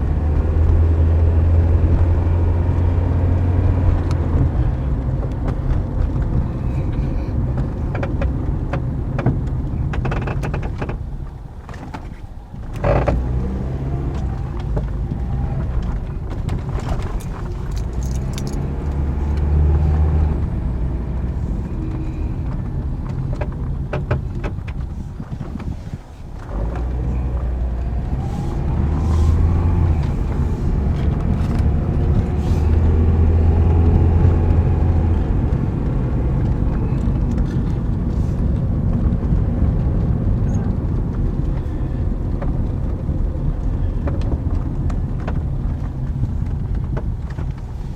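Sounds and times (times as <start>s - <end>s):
car road and engine rumble: 0.0s - 47.9s
suspension clunks and rattles: 0.0s - 47.9s.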